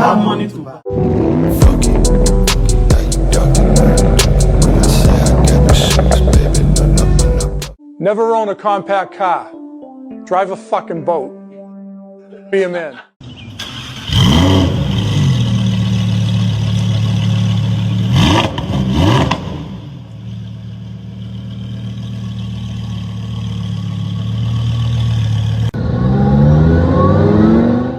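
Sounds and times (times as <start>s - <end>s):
sports car engine revving: 1.0s - 7.8s, 13.7s - 27.9s.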